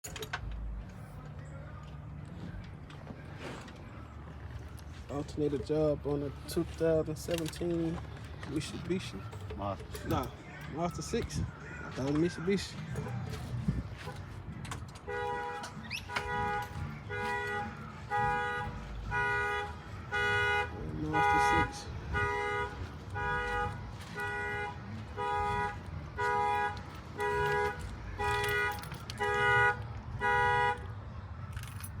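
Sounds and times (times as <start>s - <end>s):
car alarm two-tone horn beeps: 15.0s - 31.0s.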